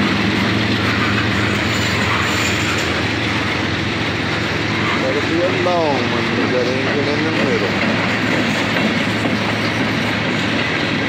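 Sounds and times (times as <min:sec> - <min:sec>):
steel wheels rumbling on rails: 0:00.0 - 0:11.0
faint high wheel squeal: 0:00.8 - 0:03.8.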